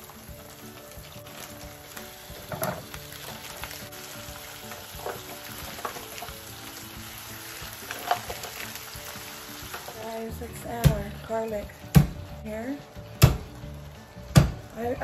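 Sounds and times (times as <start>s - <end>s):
loud oil crackles: 0.0s - 11.6s
chicken sizzling in oil: 0.0s - 15.0s.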